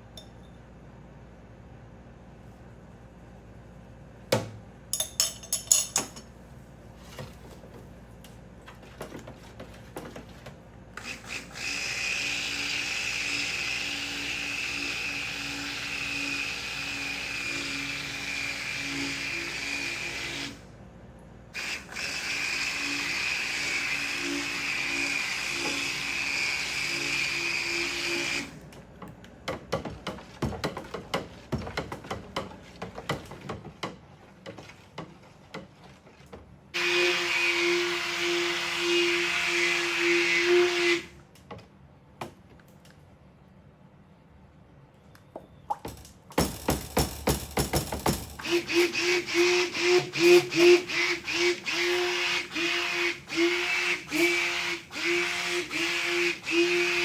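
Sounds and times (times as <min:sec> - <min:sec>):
glass clinks: 0:05.0 - 0:06.3
stick blender running: 0:11.0 - 0:20.6, 0:21.6 - 0:28.7, 0:36.8 - 0:41.1, 0:46.4 - 0:57.0.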